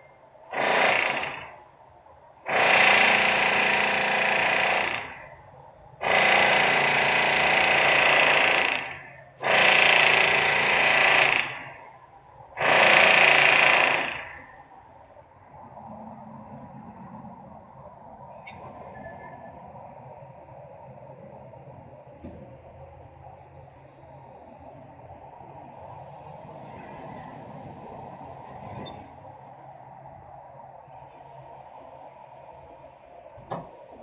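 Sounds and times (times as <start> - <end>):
rattling power tool: 0.5 - 1.6, 2.4 - 5.4, 6.0 - 11.8, 12.6 - 14.5.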